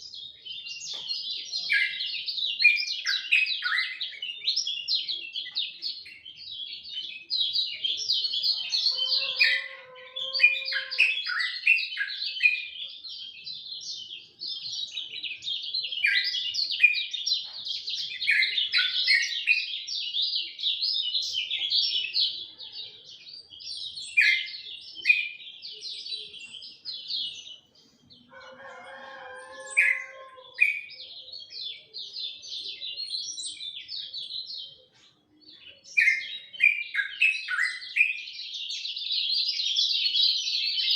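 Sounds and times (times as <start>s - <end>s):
songbird chattering song: 0.0s - 40.9s
rooster crowing: 8.7s - 11.2s, 28.3s - 30.7s.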